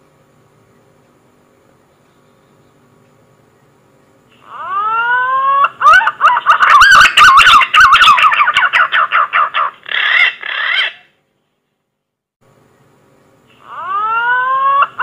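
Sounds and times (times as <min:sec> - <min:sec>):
pigeon song lure call: 0:04.3 - 0:11.1.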